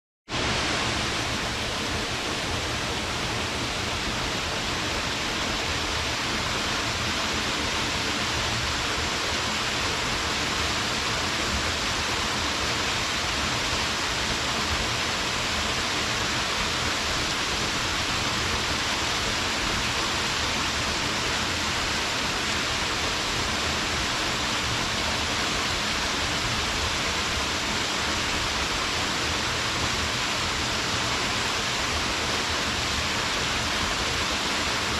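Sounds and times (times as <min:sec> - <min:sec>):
waterfall splashing: 0:00.4 - 0:34.9.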